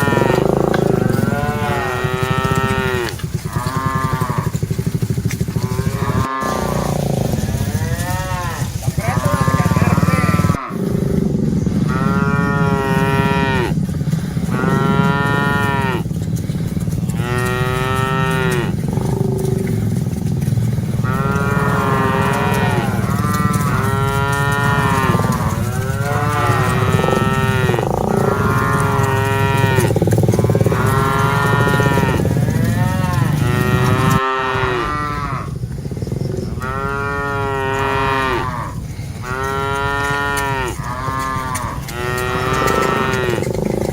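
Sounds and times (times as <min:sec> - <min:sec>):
cattle mooing: 0:00.0 - 0:43.9
low rumble: 0:09.7 - 0:34.2.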